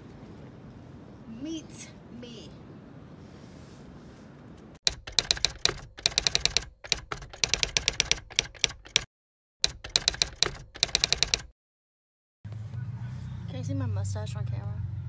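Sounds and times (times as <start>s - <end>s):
typewriter keystrokes clacking: 4.9s - 11.5s.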